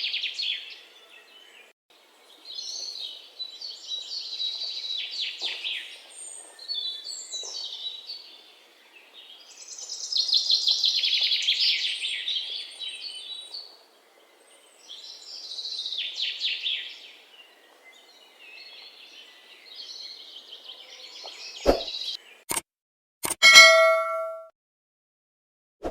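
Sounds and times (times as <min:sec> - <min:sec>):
bird chirping trills: 0:23.4 - 0:24.4.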